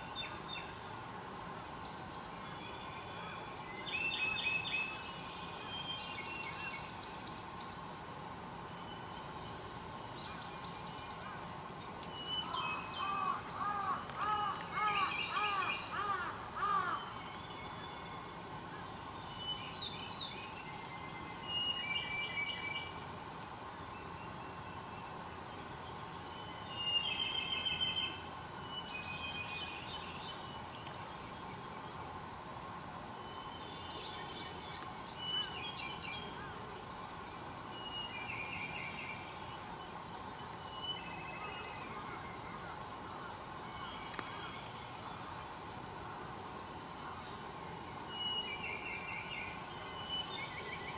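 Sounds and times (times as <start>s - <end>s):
wild birds chirping and trilling: 3.1s - 17.8s.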